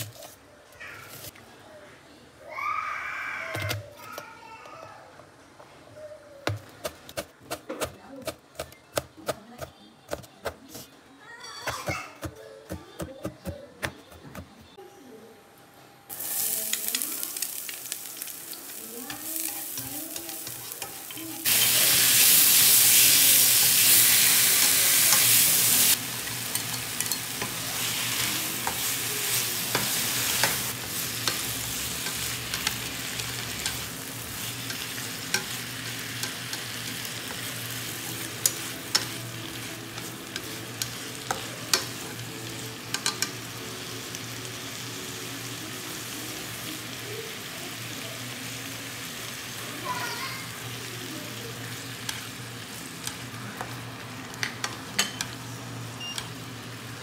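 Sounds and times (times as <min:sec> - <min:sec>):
beef sizzling in a frying pan: 0:16.1 - 0:57.0
chopsticks clicking against pan: 0:42.9 - 0:43.4.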